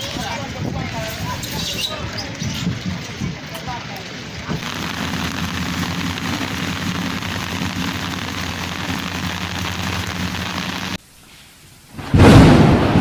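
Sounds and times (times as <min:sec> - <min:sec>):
wind: 0:00.0 - 0:13.0
ship engine droning: 0:04.0 - 0:11.0
rain hissing: 0:04.1 - 0:11.0.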